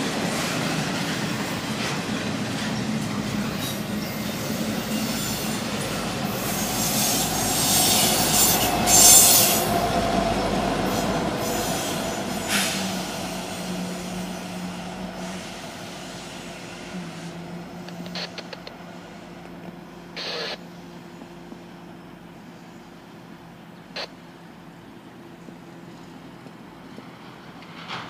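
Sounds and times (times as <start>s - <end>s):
diesel locomotive engine drone: 0.0s - 28.0s
wheel and rail noise: 0.0s - 28.0s
high squeal: 3.9s - 9.8s.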